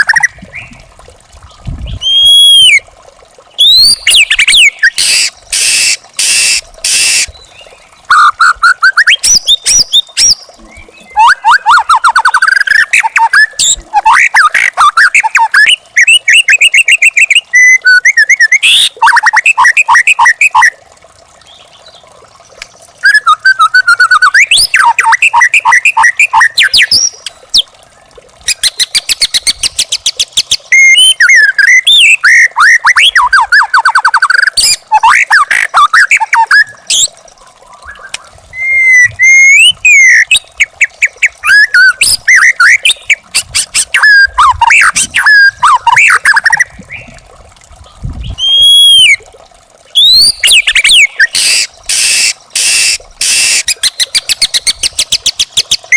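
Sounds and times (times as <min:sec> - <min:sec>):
bird singing whistled trills: 0:01.9 - 0:02.8, 0:03.6 - 0:05.9, 0:23.0 - 0:27.2, 0:28.5 - 0:37.1, 0:37.8 - 0:40.4, 0:50.0 - 0:55.7.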